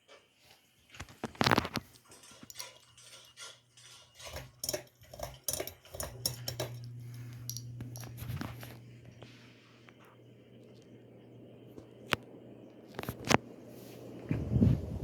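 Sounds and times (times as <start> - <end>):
ceiling fan motor humming: 0.0 - 15.0
sharp clicks and clinks: 1.6 - 8.1.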